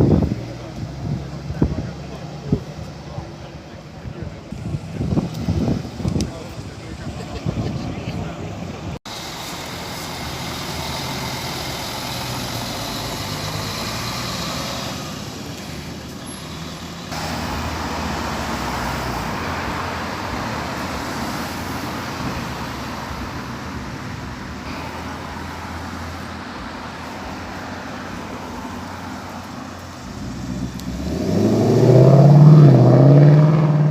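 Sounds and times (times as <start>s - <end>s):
traffic noise: 0.0s - 33.9s
car accelerating nearby: 9.2s - 23.8s, 24.8s - 33.9s.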